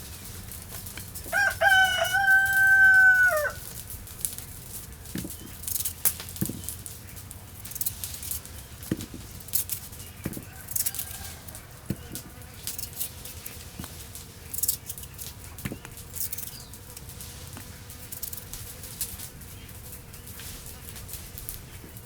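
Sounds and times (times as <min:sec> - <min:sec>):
rooster crowing: 0:01.2 - 0:03.7, 0:10.4 - 0:12.2.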